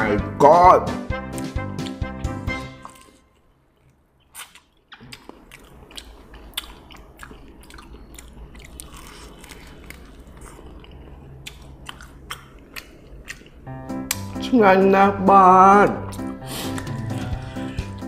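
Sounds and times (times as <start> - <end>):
person chewing crunchy food: 2.7 - 14.3, 16.0 - 18.0.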